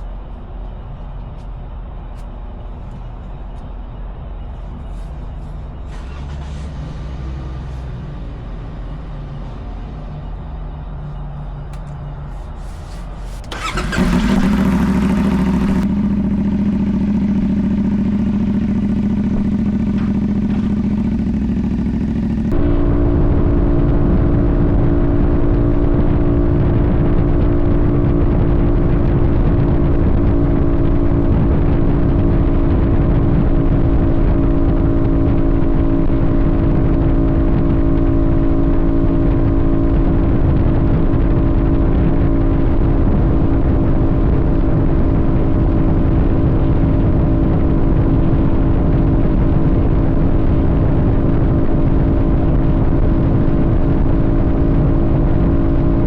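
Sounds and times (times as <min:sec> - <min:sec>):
motorcycle engine idling: 0:12.2 - 0:23.2.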